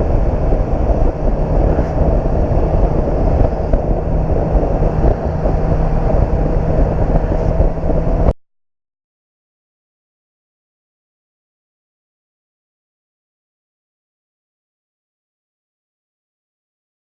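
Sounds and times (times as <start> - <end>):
motorcycle engine drone: 0.0 - 8.4
wind noise on microphone: 0.0 - 8.4.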